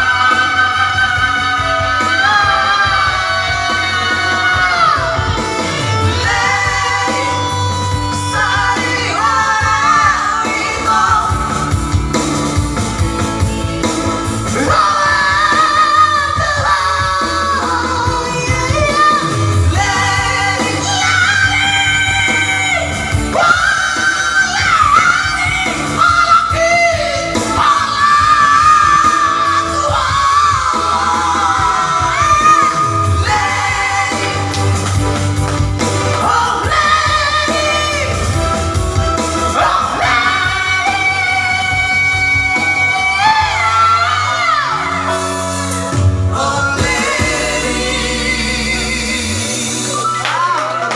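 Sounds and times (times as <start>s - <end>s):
person singing loudly: 0.0s - 11.8s, 14.4s - 34.9s, 39.4s - 45.7s
instrumental backing music: 0.0s - 50.9s.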